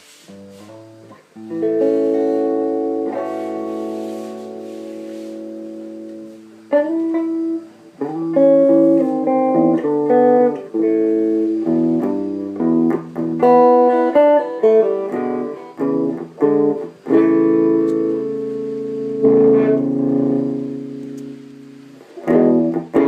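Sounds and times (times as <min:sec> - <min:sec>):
electric guitar chord and licks: 0:00.4 - 0:23.0.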